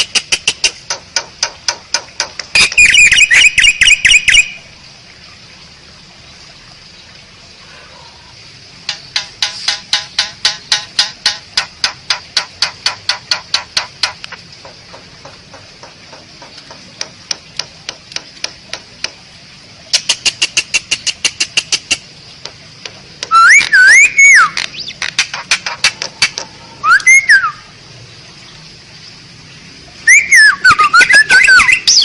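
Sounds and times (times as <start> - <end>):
bird rapid dry clicks: 0.0 - 4.4, 8.9 - 19.2, 19.9 - 23.8, 24.4 - 26.5
bird whistled notes: 2.5 - 4.6, 23.3 - 25.0, 26.8 - 27.7, 30.1 - 32.0.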